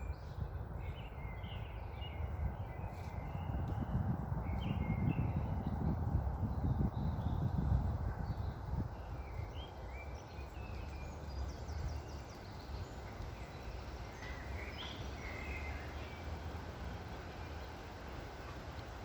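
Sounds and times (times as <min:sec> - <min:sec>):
low rumble of wind: 0:00.0 - 0:19.0
birds chirping: 0:08.2 - 0:16.5.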